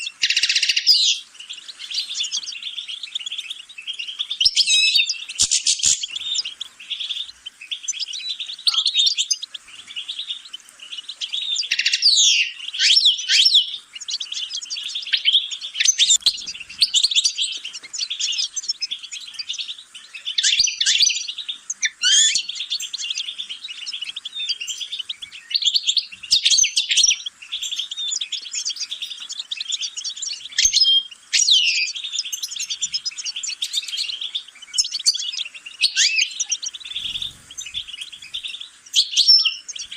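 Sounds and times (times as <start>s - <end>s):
goldfinch twittering song: 0.0s - 39.9s.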